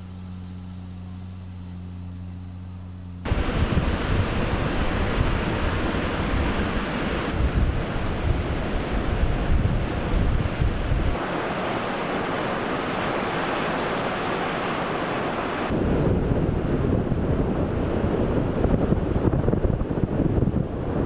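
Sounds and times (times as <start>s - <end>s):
ocean surf rushing: 3.3s - 19.2s
wind buffeting microphone: 3.3s - 21.0s.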